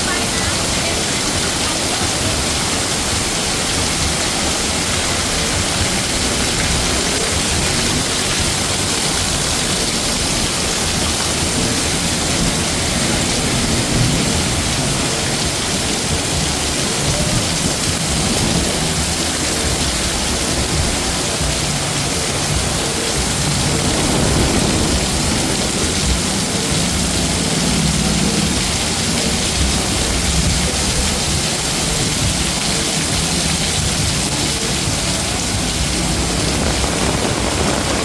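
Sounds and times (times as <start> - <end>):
heavy rain pouring: 0.0 - 38.0
low rumble: 23.3 - 28.8, 34.8 - 38.0.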